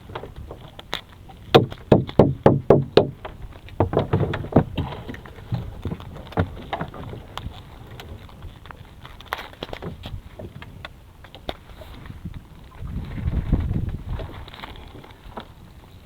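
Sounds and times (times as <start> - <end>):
sharp knocks: 1.5 - 5.6.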